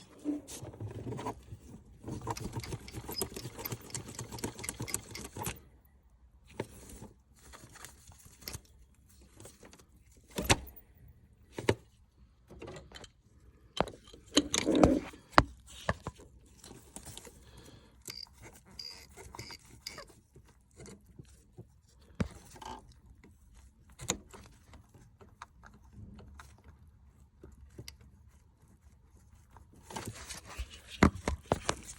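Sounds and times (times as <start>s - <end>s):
fast mechanical rattle: 2.0s - 5.6s.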